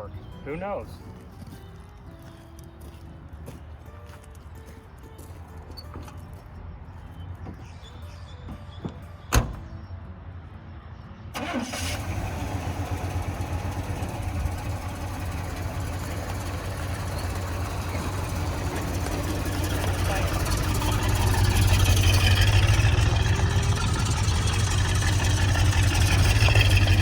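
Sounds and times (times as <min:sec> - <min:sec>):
truck engine running: 0:11.4 - 0:27.0
engine knock: 0:12.7 - 0:27.0.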